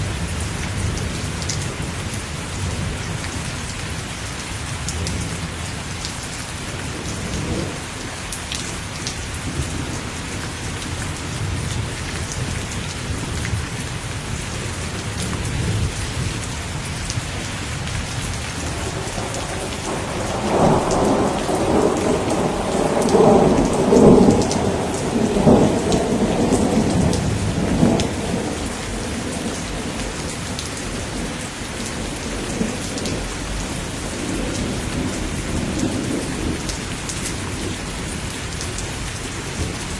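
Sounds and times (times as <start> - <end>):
steady rain falling: 0.0 - 39.9
thunder rumbling: 9.4 - 39.9.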